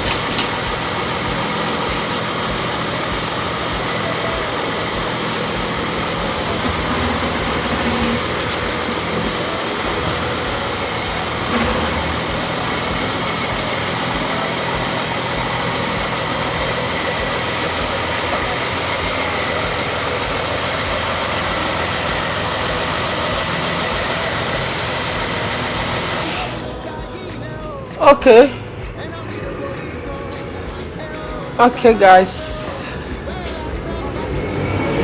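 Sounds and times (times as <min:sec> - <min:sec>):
car engine running: 0:00.0 - 0:35.0
road and wind noise: 0:00.0 - 0:35.0.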